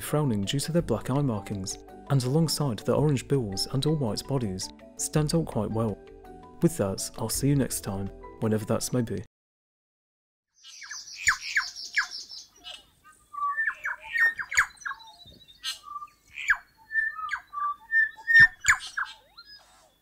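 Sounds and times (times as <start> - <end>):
bird song with trills and whistles: 10.5 - 20.0.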